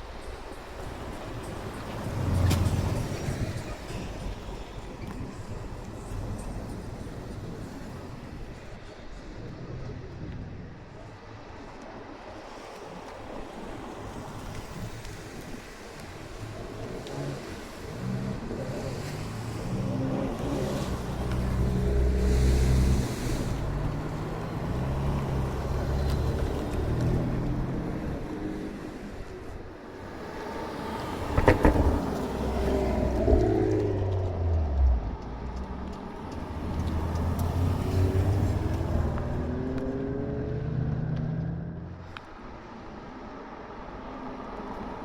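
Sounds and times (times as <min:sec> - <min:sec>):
car engines rumbling: 0:00.0 - 0:12.1, 0:13.7 - 0:45.0
car engine rumbling: 0:30.0 - 0:42.2.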